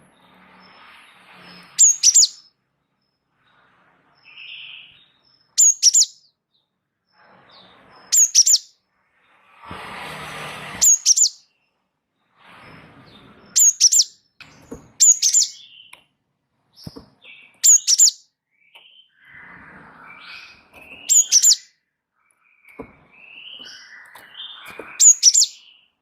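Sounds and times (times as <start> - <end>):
bird chirping: 0.0 - 9.4, 10.8 - 11.8, 13.1 - 26.0
bird chattering: 1.8 - 2.4, 5.6 - 6.2, 8.2 - 8.7, 10.8 - 11.4, 13.6 - 14.1, 15.0 - 15.9, 17.6 - 18.2, 21.0 - 21.6, 23.7 - 25.7.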